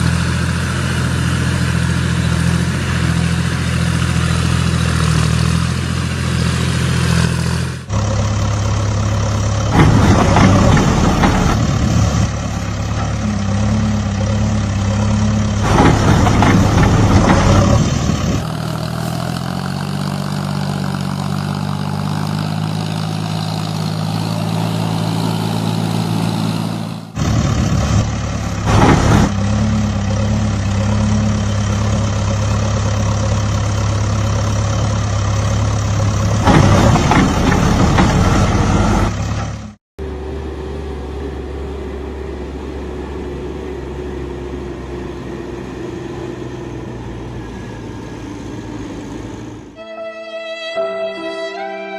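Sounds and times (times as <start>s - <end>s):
heavy vehicle engines running: 0.0s - 49.9s.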